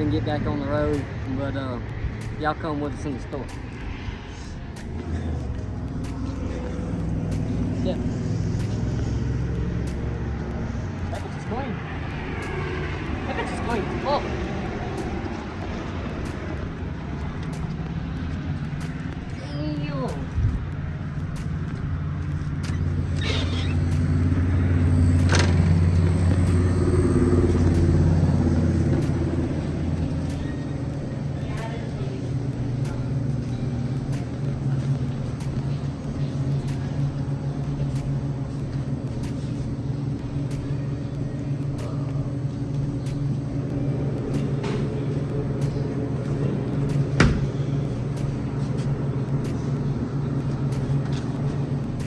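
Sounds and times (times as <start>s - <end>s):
vehicle engine rumbling: 0.0s - 52.0s
sharp knock: 47.2s - 47.5s.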